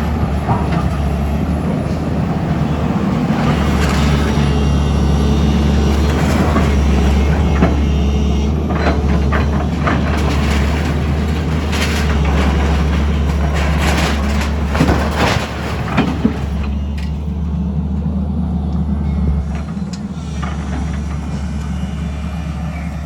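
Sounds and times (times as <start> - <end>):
knocks and crunching: 0.0 - 17.5
heavy engine running: 0.0 - 23.0.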